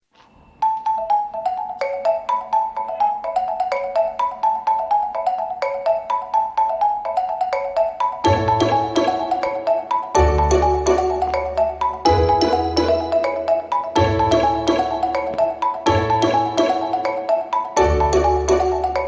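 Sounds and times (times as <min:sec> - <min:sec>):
bright marimba-like melody: 0:00.6 - 0:19.0
bass and fuller backing: 0:10.2 - 0:17.1, 0:17.8 - 0:19.0.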